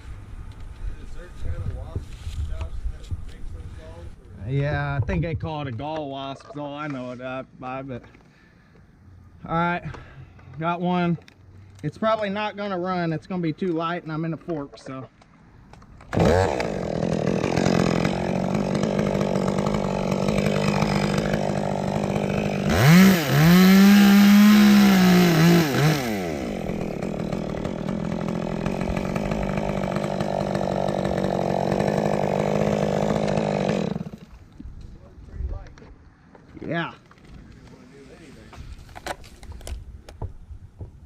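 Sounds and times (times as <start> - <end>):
chainsaw running: 16.0 - 34.5.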